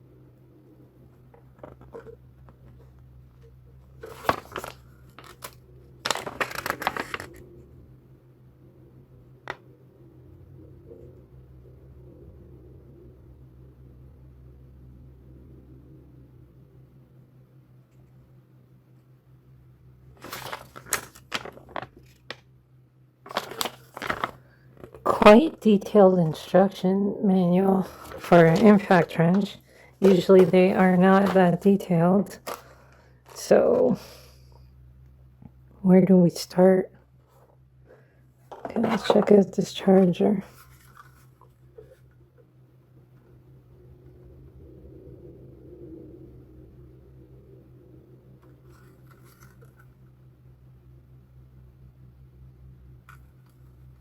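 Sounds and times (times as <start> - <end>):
packaging crinkling: 4.0 - 7.4, 20.2 - 22.4, 23.3 - 25.1, 27.8 - 33.5.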